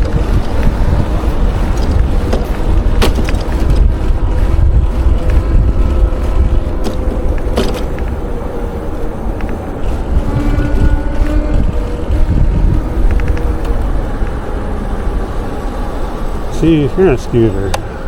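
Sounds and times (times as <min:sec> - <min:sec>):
city traffic: 0:00.0 - 0:18.0
wind buffeting microphone: 0:00.0 - 0:18.0
sharp clicks or rattles: 0:13.0 - 0:13.8.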